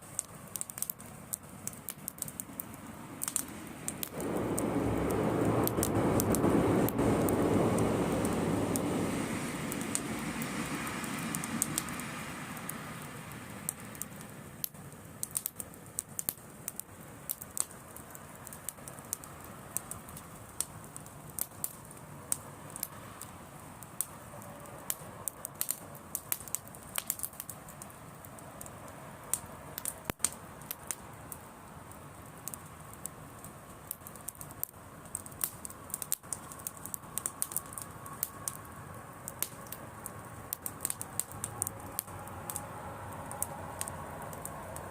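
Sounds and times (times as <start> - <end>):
bonfire crackling and popping: 0.0 - 44.9
low rumble: 4.1 - 10.8.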